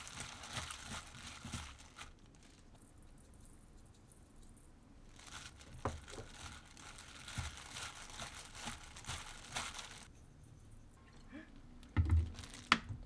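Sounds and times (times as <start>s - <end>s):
packaging crinkling: 0.0s - 2.7s, 5.1s - 10.1s, 12.1s - 13.0s.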